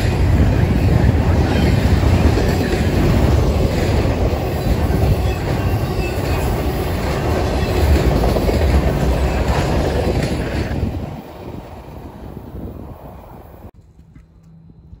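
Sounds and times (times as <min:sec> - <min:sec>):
wheels clacking over rail joints: 0:00.0 - 0:11.9
train wheels rumbling on rail: 0:00.0 - 0:15.0.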